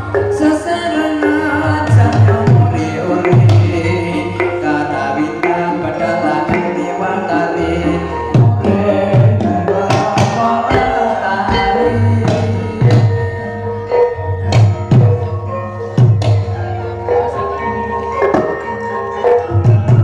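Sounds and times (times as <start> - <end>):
gamelan ensemble held tones: 0.0 - 20.0
hand drums struck: 1.2 - 4.7, 7.7 - 20.0.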